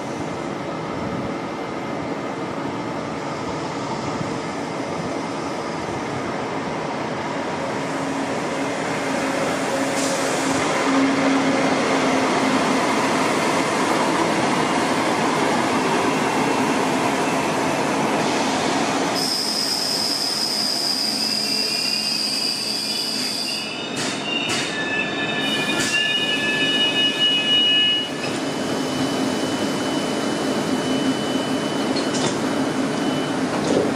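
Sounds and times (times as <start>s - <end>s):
train rumbling: 0.0s - 19.2s, 23.0s - 33.9s
high-pitched wheel squeal: 19.2s - 28.3s.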